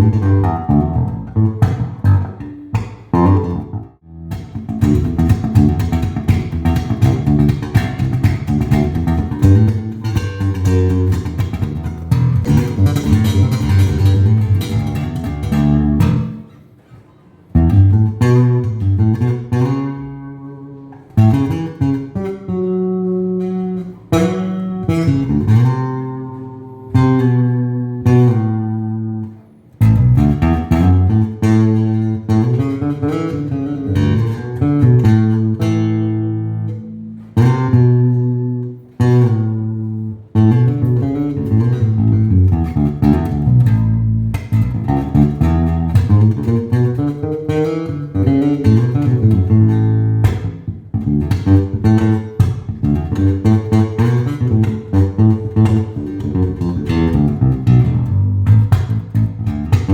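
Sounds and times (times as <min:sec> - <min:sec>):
electric bass playing: 0:00.0 - 0:16.6, 0:17.5 - 0:59.9.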